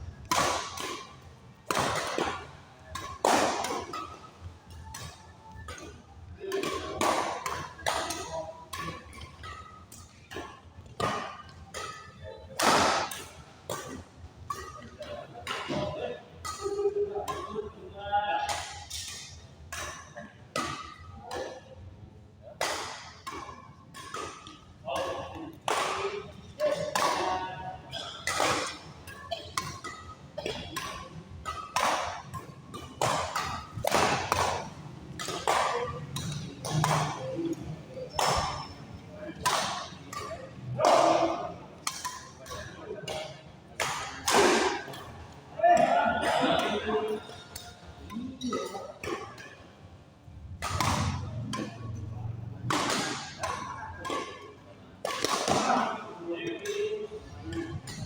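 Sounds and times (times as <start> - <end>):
rackets hitting shuttlecock: 0.2 - 17.6, 18.4 - 21.6, 22.5 - 49.6, 50.5 - 58.0
players' voices: 33.0 - 49.0, 55.2 - 58.0.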